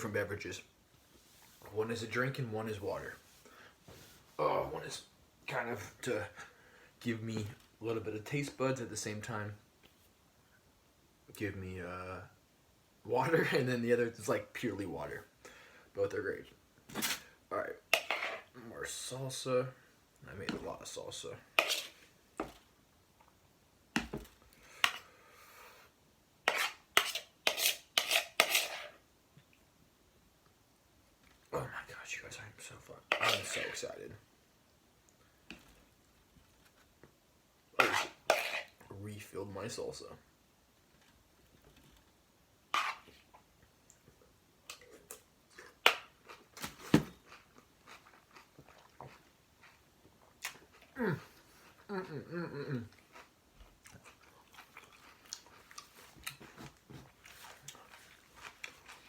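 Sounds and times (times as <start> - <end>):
spoon scraping a dish: 17.9 - 18.5, 21.6 - 22.0, 26.5 - 29.0, 33.1 - 33.8, 37.8 - 38.8, 42.7 - 43.2
person chewing with mouth clicks: 47.3 - 51.0, 52.8 - 59.0.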